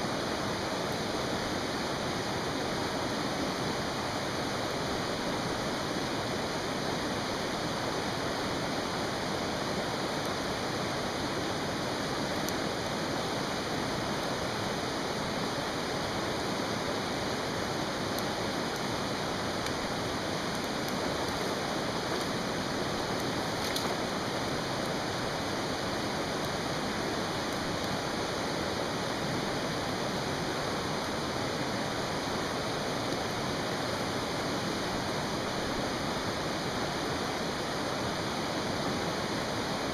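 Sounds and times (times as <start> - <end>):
stream rushing: 0.0 - 39.9
campfire popping: 9.8 - 13.3, 16.2 - 28.6.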